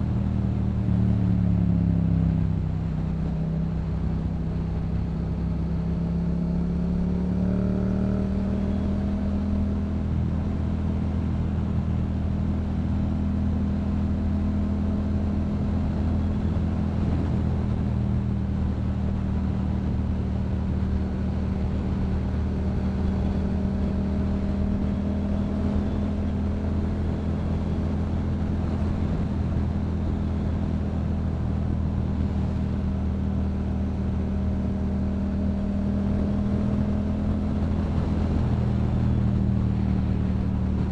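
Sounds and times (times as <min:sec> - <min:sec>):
motorcycle engine cruising: 0:00.0 - 0:40.9.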